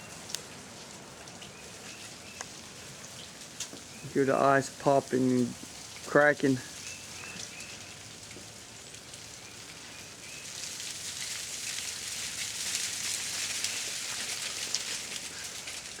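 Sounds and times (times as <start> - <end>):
ice popping and cracking: 10.4 - 16.0.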